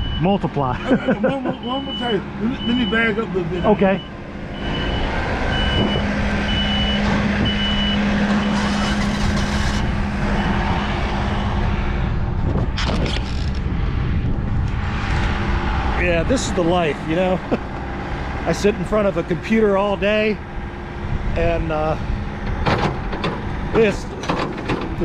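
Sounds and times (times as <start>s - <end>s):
reversing alarm beeping: 0.0s - 0.4s, 1.4s - 8.9s, 10.2s - 11.8s
diesel engine running: 0.0s - 25.0s
knocks: 22.5s - 23.5s.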